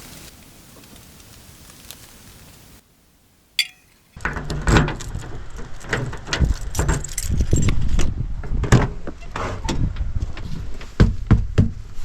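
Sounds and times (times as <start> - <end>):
handling noise clinks and knocks: 3.6 - 4.0
keys jangling: 6.9 - 7.8.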